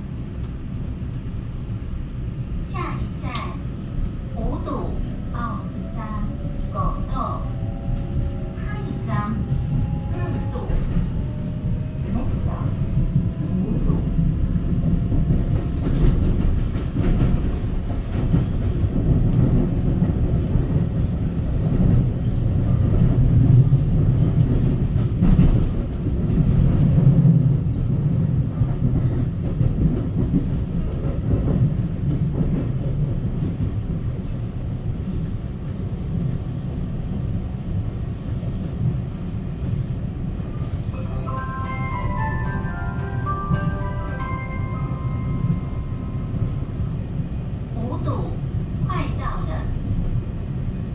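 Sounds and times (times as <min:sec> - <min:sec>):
train rumbling: 0:00.0 - 0:50.9
chime melody: 0:40.9 - 0:46.6.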